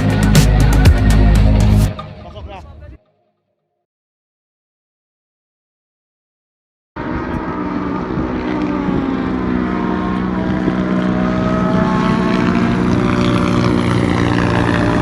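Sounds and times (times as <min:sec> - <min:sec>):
aircraft engine droning: 0:07.0 - 0:15.0.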